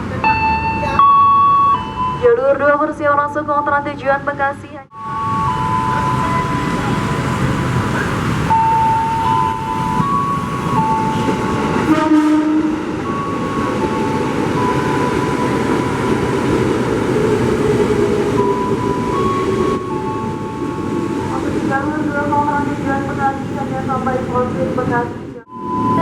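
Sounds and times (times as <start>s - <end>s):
train rumbling: 3.8s - 26.0s
train horn blast: 11.1s - 13.0s
electronic tones: 25.5s - 26.0s.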